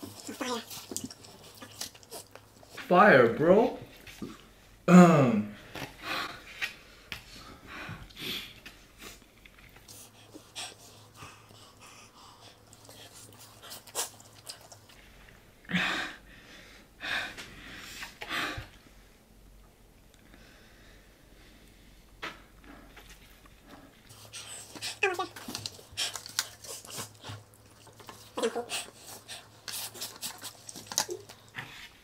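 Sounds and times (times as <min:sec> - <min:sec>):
person panting hissing breaths: 0:09.9 - 0:13.1, 0:15.7 - 0:18.8.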